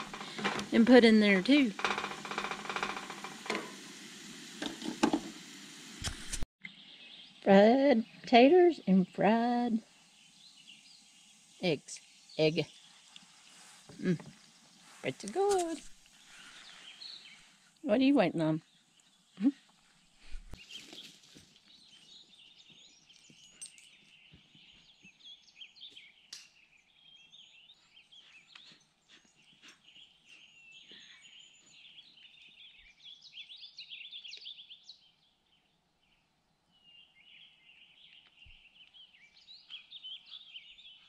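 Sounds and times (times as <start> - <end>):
birds chirping and trilling: 0.0 - 3.8, 6.6 - 19.6, 20.5 - 41.0.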